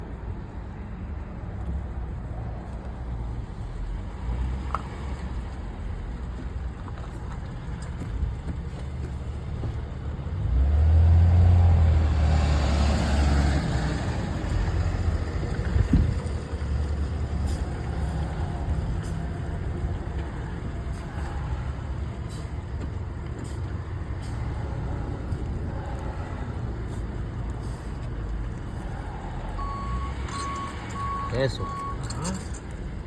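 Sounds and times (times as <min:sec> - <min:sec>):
jeep engine rumbling: 0:00.0 - 0:33.0.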